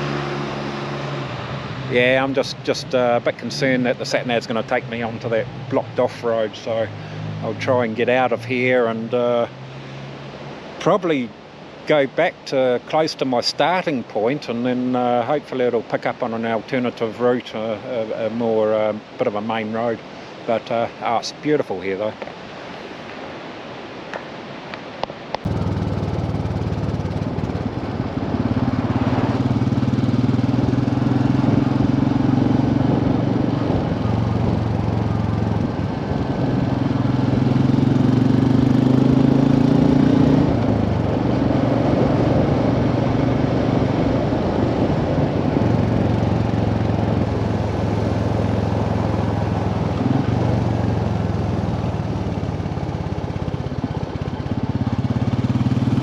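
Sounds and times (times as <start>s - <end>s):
motorcycle engine revving: 0.0s - 8.4s, 25.5s - 56.0s.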